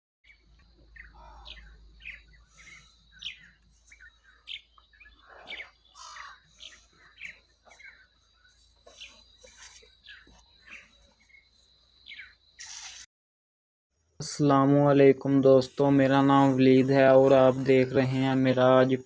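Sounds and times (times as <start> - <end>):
birds chirping and calling: 0.2 - 13.0.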